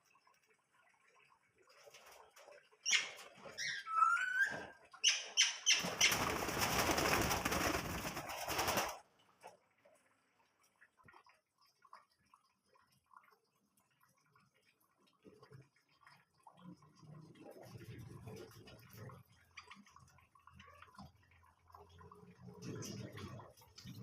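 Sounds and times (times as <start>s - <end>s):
loud wing flapping: 5.8s - 9.0s.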